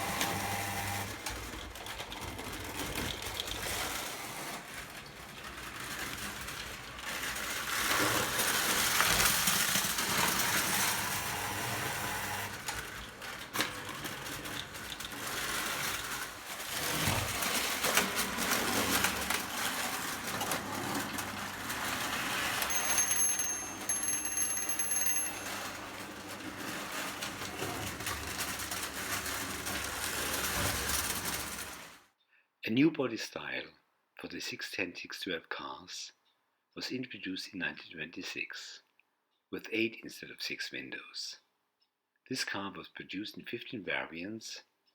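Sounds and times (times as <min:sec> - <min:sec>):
metal wheels clattering on track: 0:00.7 - 0:32.0.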